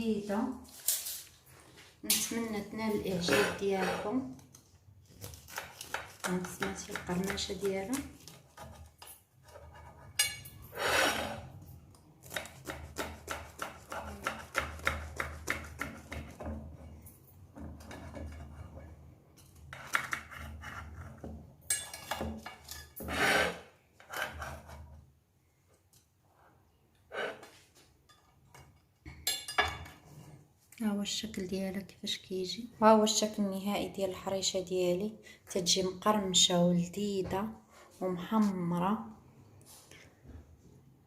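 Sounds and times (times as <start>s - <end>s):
rasping scrapes on plate: 3.1s - 4.2s, 8.3s - 11.6s, 23.0s - 25.0s, 27.1s - 27.6s.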